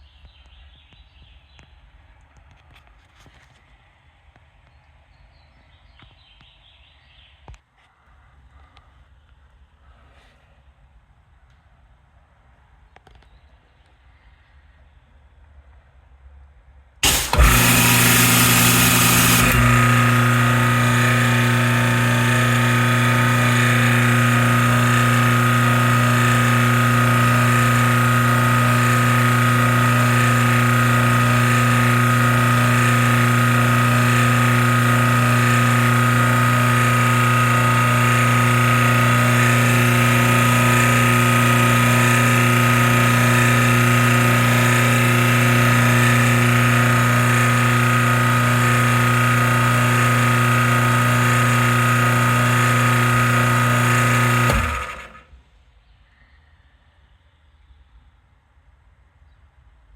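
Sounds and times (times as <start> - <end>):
pressure washer running: 17.0 - 55.3.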